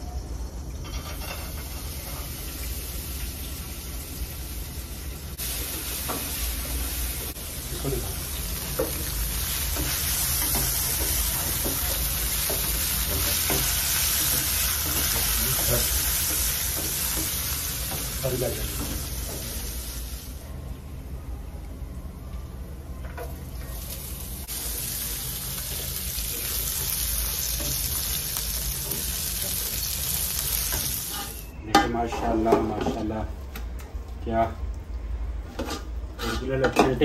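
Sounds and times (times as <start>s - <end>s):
nuts sizzling in hot oil: 0.2s - 20.4s, 23.4s - 31.6s.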